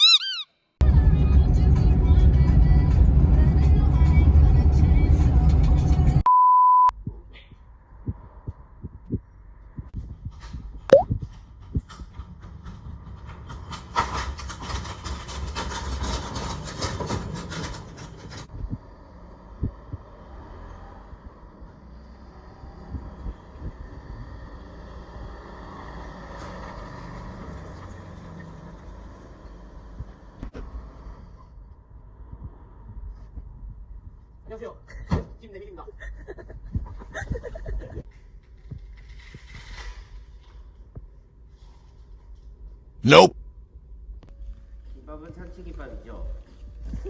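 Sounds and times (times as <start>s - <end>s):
electronic beep: 0.0s - 0.5s
rising squeak: 0.0s - 0.5s
wind and motion rumble: 18.4s - 20.3s, 29.8s - 34.6s.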